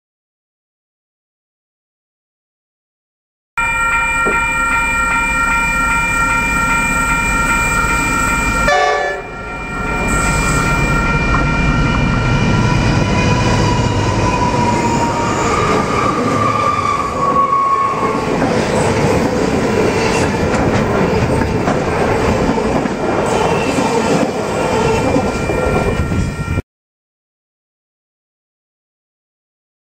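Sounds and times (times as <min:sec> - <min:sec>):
train rumble: 0:03.6 - 0:26.6
train horn: 0:07.3 - 0:14.9.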